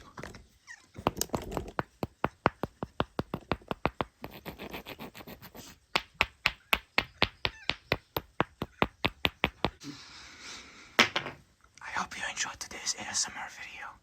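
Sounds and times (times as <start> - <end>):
rocks tapped together: 1.0 - 4.5, 5.9 - 9.8.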